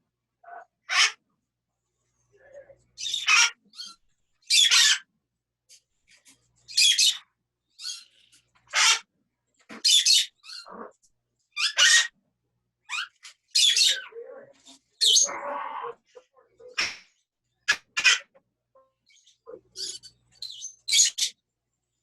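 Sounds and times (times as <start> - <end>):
parrots squawking: 0.4 - 1.2, 2.4 - 5.1, 6.7 - 7.2, 7.8 - 9.1, 9.7 - 12.2, 12.9 - 16.9, 17.7 - 18.4, 19.1 - 21.4.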